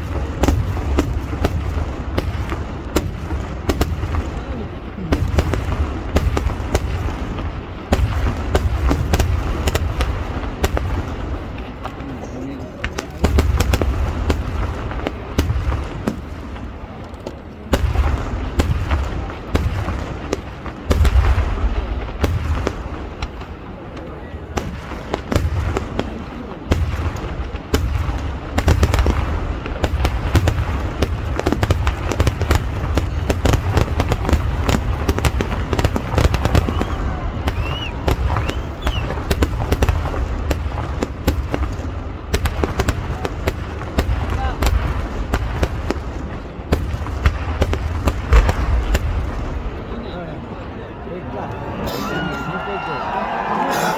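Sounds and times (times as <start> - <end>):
deep fireworks booms: 0.0 - 51.8
fireworks crackling: 0.0 - 51.9
firework whistle: 36.1 - 39.6.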